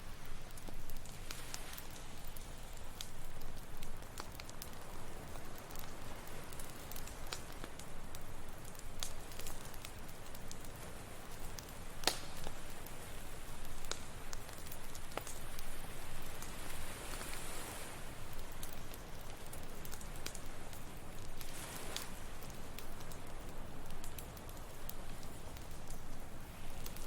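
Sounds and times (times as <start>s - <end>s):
campfire crackling: 0.0s - 27.0s
ocean surf: 15.5s - 19.5s.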